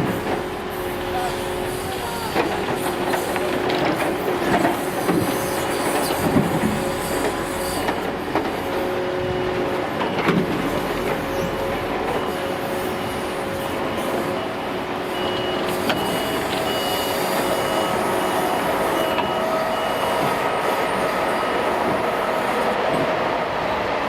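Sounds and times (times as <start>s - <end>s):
hydraulic crane whine: 0.0s - 23.3s.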